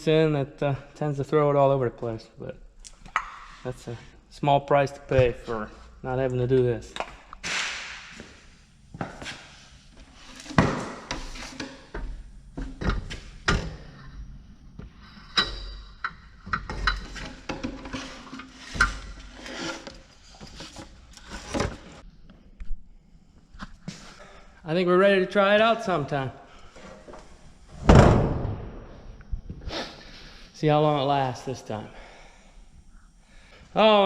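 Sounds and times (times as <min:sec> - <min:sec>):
tools and metal parts clanking: 0:15.0 - 0:22.0.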